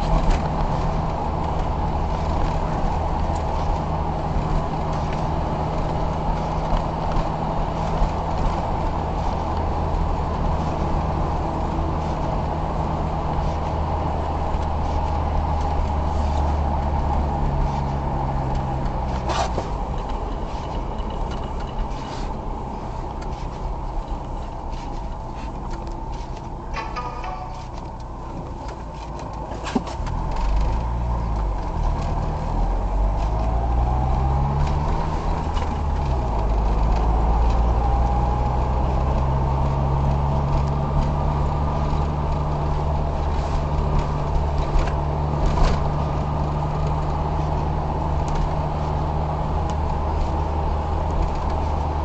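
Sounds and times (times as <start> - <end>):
car engine and road noise: 0.0 - 52.0.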